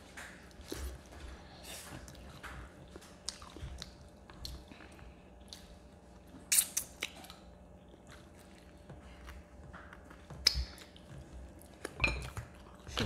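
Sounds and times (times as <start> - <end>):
people chewing and biting: 0.0 - 13.0
sharp mouth clicks: 6.5 - 7.4.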